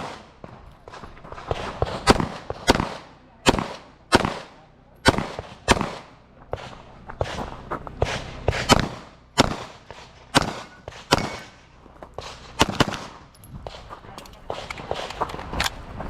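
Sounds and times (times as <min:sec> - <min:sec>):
pistol shots with echo: 0:00.0 - 0:00.5, 0:01.4 - 0:07.4, 0:08.0 - 0:13.9.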